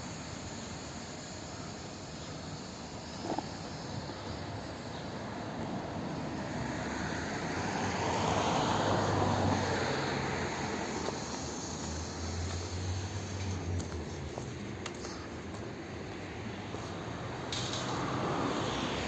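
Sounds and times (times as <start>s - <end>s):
vehicle passing: 6.4s - 15.1s, 17.1s - 19.0s.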